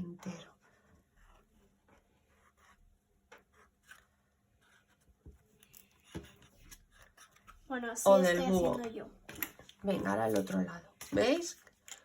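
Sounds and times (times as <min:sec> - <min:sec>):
felt-tip markers tapping and scratching: 0:00.3 - 0:07.7.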